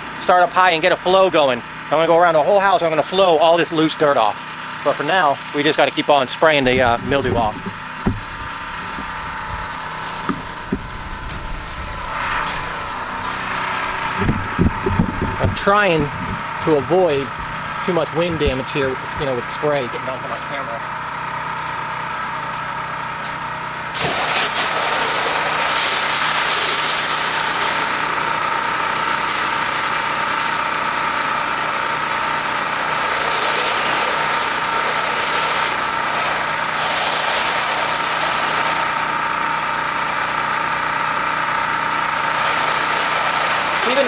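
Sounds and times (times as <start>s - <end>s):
pressure washer engine running: 0.0s - 44.0s
high-pressure water spray hissing: 7.0s - 15.0s, 23.9s - 39.2s, 41.9s - 44.0s.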